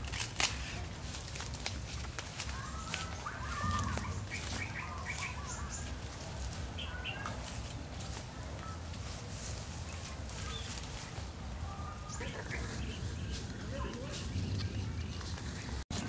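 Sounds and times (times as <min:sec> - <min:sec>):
leaves rustling: 0:00.0 - 0:16.0
small birds chirping: 0:01.9 - 0:16.0.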